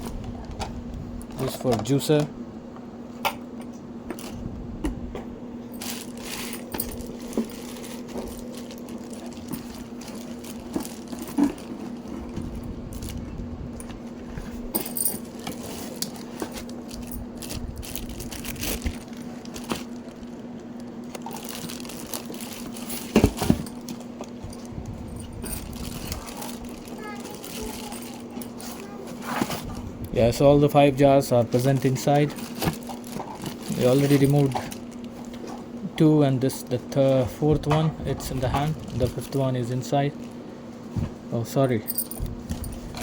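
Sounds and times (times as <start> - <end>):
steady low hum: 0.0 - 43.0
packaging rustling: 5.7 - 13.4, 14.0 - 30.5, 31.2 - 35.8
plastic wrapping crinkling: 5.7 - 13.4, 15.2 - 29.8, 31.5 - 35.7.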